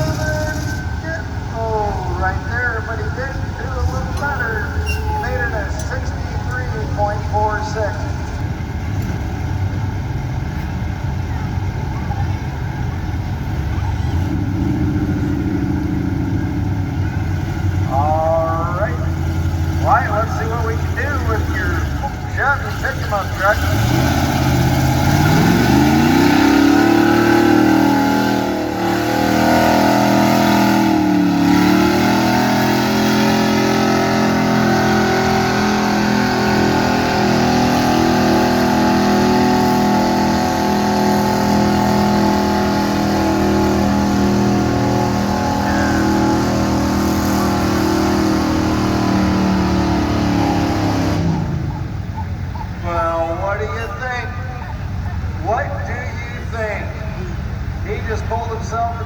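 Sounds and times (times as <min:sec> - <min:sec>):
pickup engine revving hard: 0:14.0 - 0:52.5.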